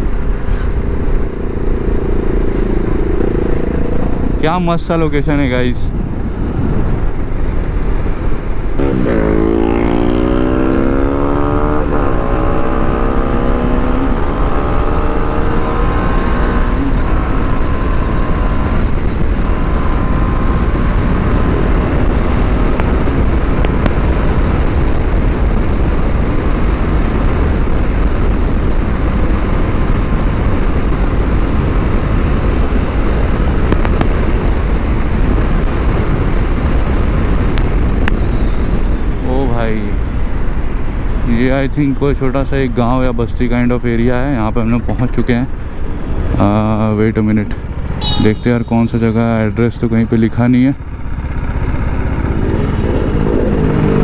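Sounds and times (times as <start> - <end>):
motorcycle engine accelerating: 0.0 - 4.9, 6.0 - 39.2, 47.5 - 54.0
wind rush: 0.0 - 39.3, 51.1 - 54.0.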